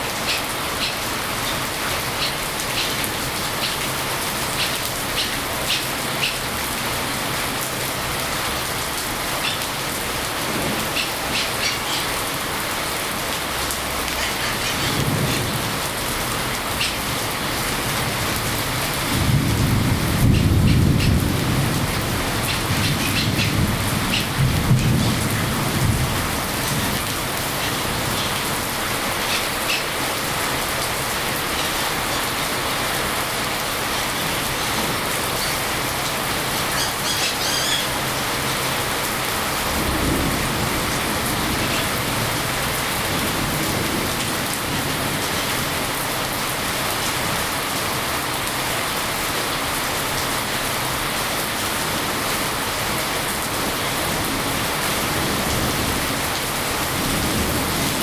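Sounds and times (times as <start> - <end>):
steady rain: 0.0 - 58.0
thunder rumbling: 13.4 - 36.8, 37.6 - 45.9.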